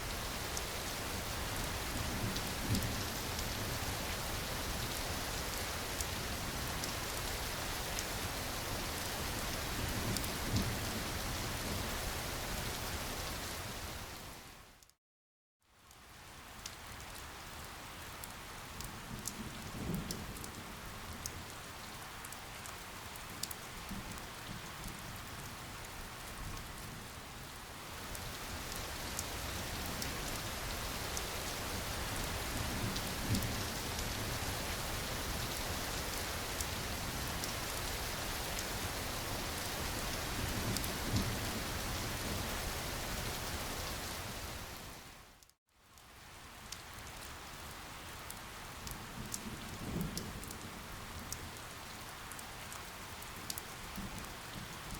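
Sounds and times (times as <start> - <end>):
steady rain falling: 0.0 - 15.0, 15.6 - 54.9
raindrop ticks: 22.2 - 25.0, 45.4 - 51.7, 52.3 - 54.9.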